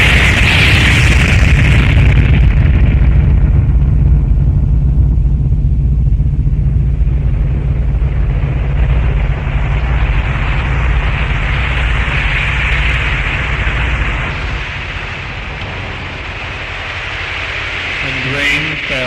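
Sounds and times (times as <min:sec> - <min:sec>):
deep steady storm rumble: 0:00.0 - 0:19.0
rushing hiss of rain and wind: 0:08.9 - 0:19.0.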